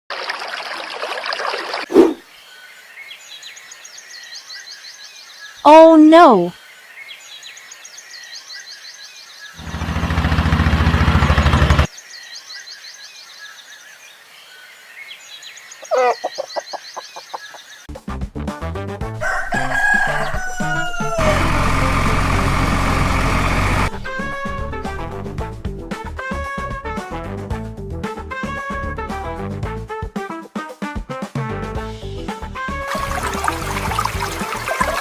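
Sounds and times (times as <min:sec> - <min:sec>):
birds chirping: 0:02.1 - 0:17.9
loud low droning: 0:09.6 - 0:11.9, 0:20.0 - 0:26.2
rising animal call: 0:19.2 - 0:22.8.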